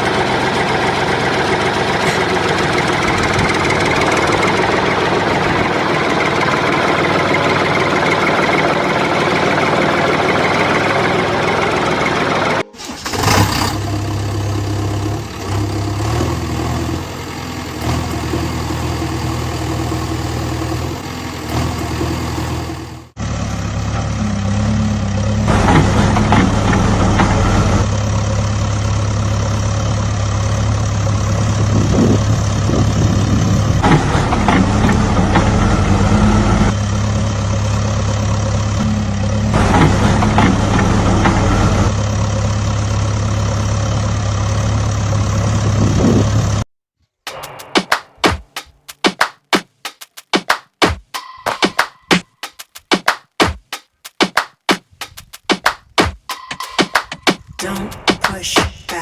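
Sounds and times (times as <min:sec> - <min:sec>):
engine idling: 0:00.0 - 0:46.6
rattling: 0:00.5 - 0:08.8.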